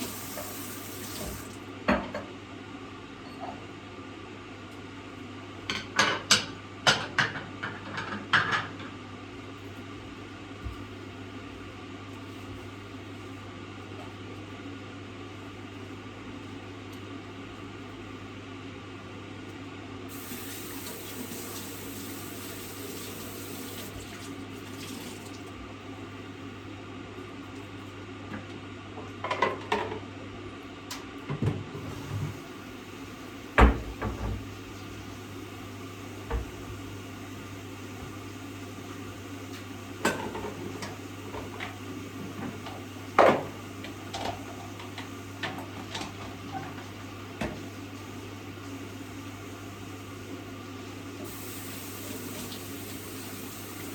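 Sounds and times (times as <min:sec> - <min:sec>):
water running in a sink: 0:00.0 - 0:01.7, 0:20.1 - 0:25.8, 0:31.8 - 0:53.9
dishes clattering in a sink: 0:00.0 - 0:02.3, 0:05.7 - 0:09.0, 0:29.2 - 0:30.0, 0:40.0 - 0:47.6.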